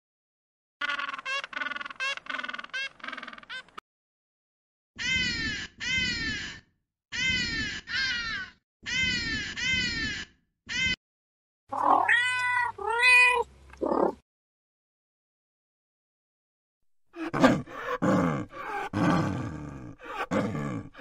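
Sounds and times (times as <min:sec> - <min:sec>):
bird calls: 0:00.8 - 0:03.8
cat meowing: 0:11.7 - 0:13.5.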